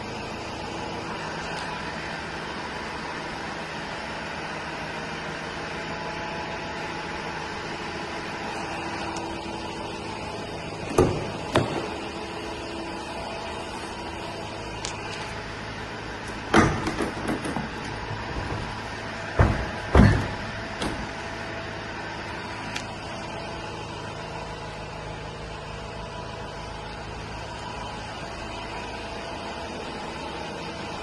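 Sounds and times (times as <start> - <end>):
diesel engine idling: 0.0 - 31.0
van doors banging shut: 10.9 - 12.1, 16.3 - 21.3
knocks and rattles: 16.3 - 21.2.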